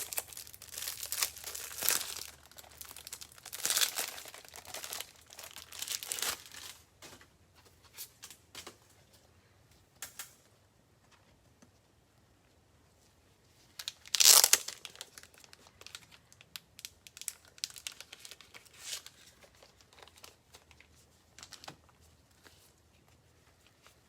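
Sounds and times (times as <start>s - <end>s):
plastic packaging ripping: 0.0s - 6.8s, 13.8s - 16.2s, 16.8s - 20.4s
plastic packaging crinkling: 0.0s - 6.9s, 13.7s - 22.7s.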